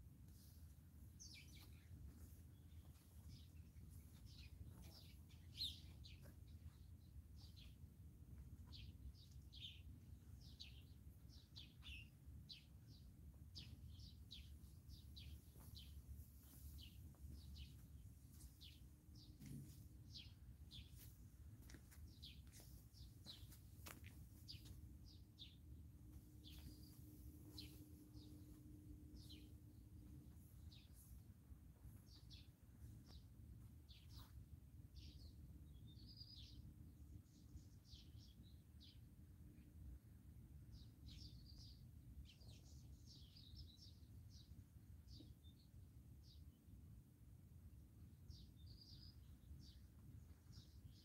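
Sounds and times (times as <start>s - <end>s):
steady low rumble: 0.1s - 35.7s
small birds chirping: 0.3s - 40.0s, 40.6s - 46.8s, 48.1s - 51.0s.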